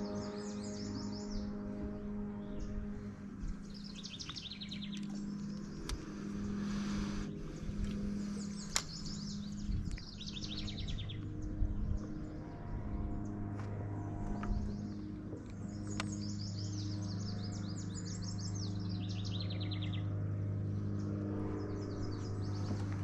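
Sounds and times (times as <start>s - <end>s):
low hum: 0.0s - 23.0s
songbirds singing: 0.0s - 23.0s
sharp clicks: 4.2s - 6.1s, 7.8s - 9.2s.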